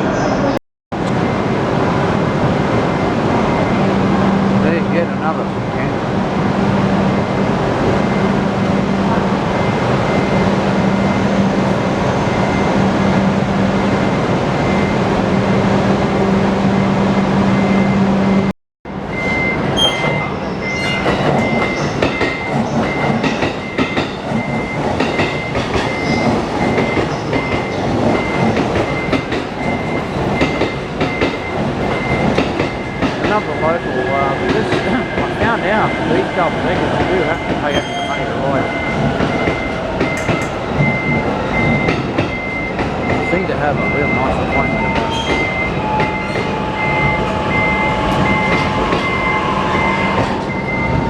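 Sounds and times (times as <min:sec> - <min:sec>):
train running with steady hum: 0:00.0 - 0:51.0
repeating high beep: 0:19.1 - 0:24.8
train wheel clatter: 0:19.8 - 0:33.6, 0:38.9 - 0:51.0.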